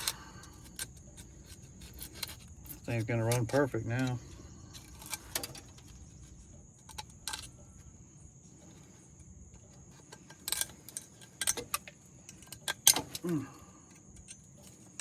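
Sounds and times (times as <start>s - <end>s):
tools clicking and knocking: 0.0s - 7.9s, 9.5s - 15.0s.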